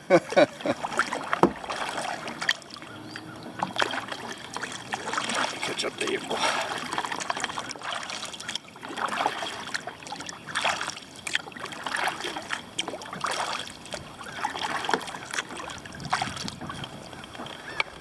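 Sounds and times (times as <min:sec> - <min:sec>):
kayak paddle splashing: 0:00.0 - 0:18.0.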